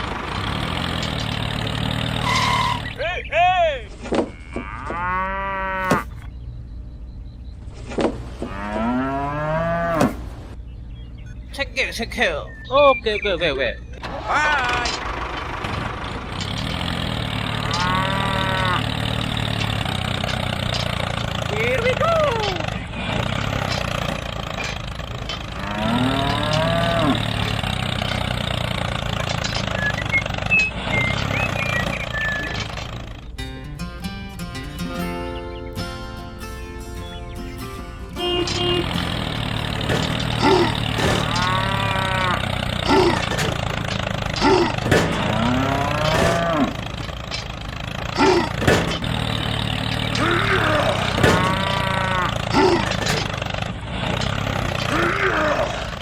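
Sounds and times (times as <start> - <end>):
low engine drone: 0.0 - 3.0, 13.8 - 56.0
cow mooing: 4.2 - 6.2, 8.4 - 10.2, 17.5 - 19.1, 25.5 - 27.6, 38.1 - 43.4, 45.4 - 46.8, 50.2 - 52.8.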